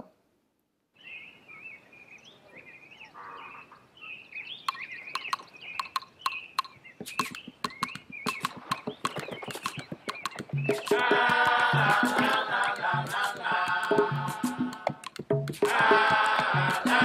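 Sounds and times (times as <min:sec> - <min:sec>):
birds chirping and warbling: 0:00.9 - 0:11.7
sharp clicks: 0:04.6 - 0:14.0, 0:15.0 - 0:15.8.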